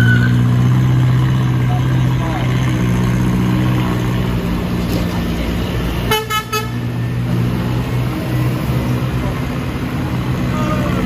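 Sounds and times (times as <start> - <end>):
bus engine running: 0.0 - 11.0
horn toots: 6.0 - 6.8.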